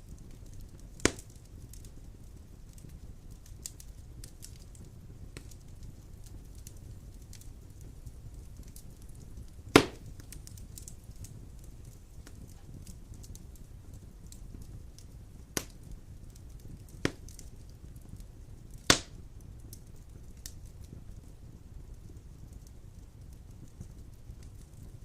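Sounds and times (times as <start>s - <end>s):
fire rumbling: 0.0s - 25.0s
sharp fire pops: 0.0s - 25.0s
small fire crackles: 0.0s - 25.0s.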